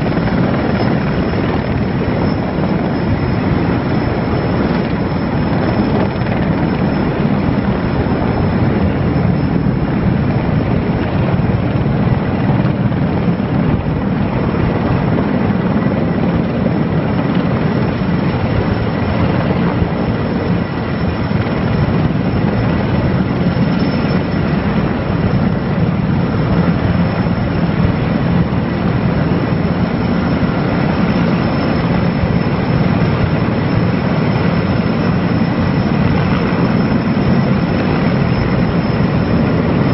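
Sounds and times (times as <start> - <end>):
helicopter rotor and engine noise: 0.0 - 39.9
thin steady whine: 0.0 - 39.9.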